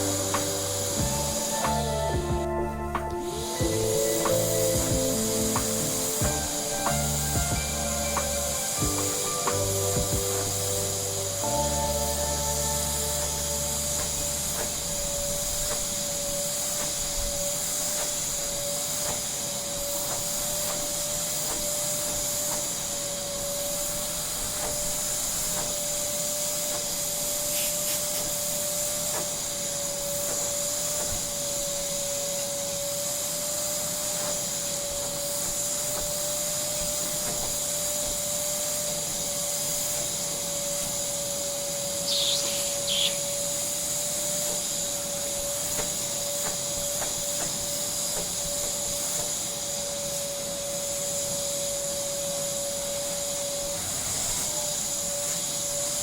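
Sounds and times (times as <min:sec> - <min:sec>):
vacuum cleaner running: 0:00.0 - 0:56.0
high squeaks: 0:42.0 - 0:43.4.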